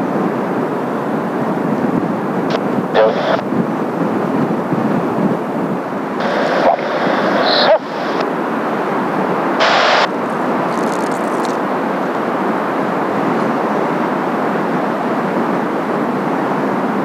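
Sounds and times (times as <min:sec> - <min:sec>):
wind buffeting microphone: 0:00.0 - 0:07.4
jet engine noise: 0:00.0 - 0:17.0.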